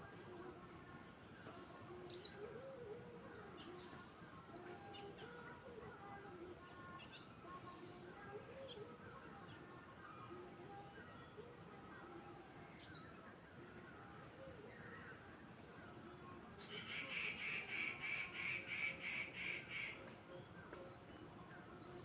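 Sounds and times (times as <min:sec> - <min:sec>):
low outdoor background: 0:00.0 - 0:22.0
birds twittering: 0:16.6 - 0:22.0.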